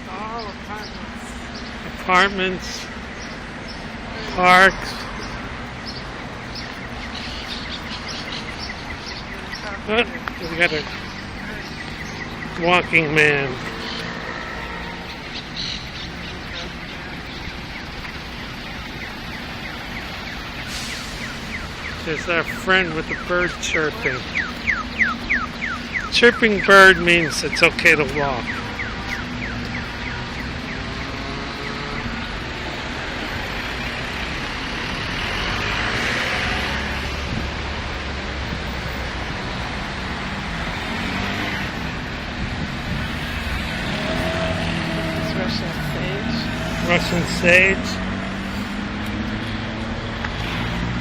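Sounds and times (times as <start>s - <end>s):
road traffic noise: 0.0s - 51.0s
street hum: 0.0s - 51.0s
vehicle passing: 0.0s - 51.0s
crossing signal bird-like chirps: 3.1s - 37.2s.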